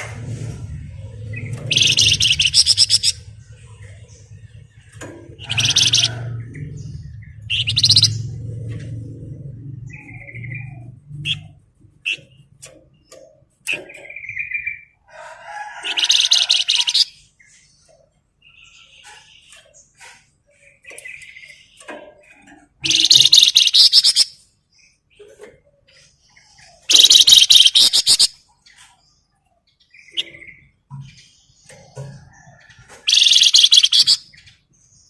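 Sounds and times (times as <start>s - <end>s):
songbird trilling: 1.4s - 3.4s, 5.3s - 8.4s, 22.8s - 24.4s, 26.7s - 28.4s, 33.0s - 34.5s.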